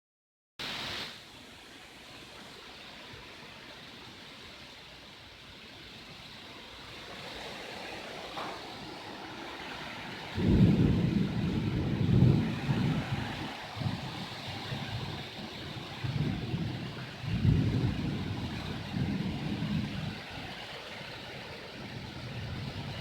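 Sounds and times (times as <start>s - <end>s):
rain falling steadily: 0.6s - 23.0s
wind gusts rumbling on microphone: 5.5s - 23.0s.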